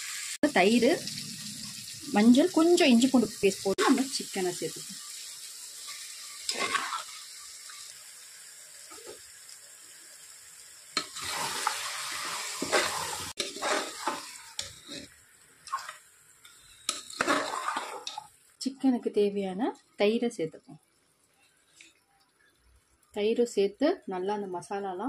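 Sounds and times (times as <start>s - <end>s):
chicken sizzling in hot masala: 0.0s - 19.1s, 20.8s - 23.5s
metal spatula scraping pot: 6.4s - 7.2s, 11.0s - 15.1s, 15.7s - 16.0s, 16.8s - 18.3s.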